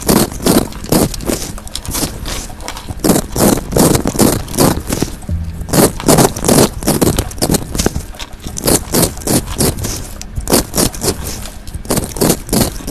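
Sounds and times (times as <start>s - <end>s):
fidget toy scraping: 0.0s - 5.2s.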